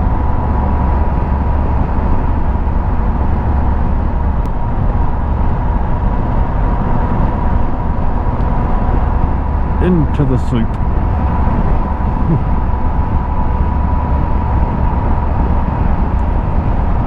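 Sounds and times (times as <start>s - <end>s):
motorcycle engine drone: 0.0s - 17.0s.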